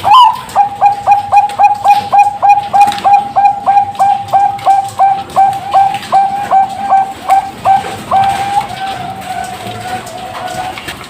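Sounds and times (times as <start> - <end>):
dove cooing: 0.0 - 11.0.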